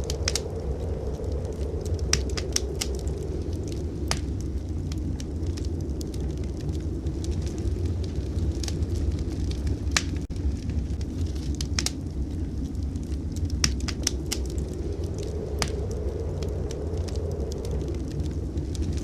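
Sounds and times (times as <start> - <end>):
blizzard wind rumble: 0.0 - 19.0
wood fire crackling: 0.0 - 19.0.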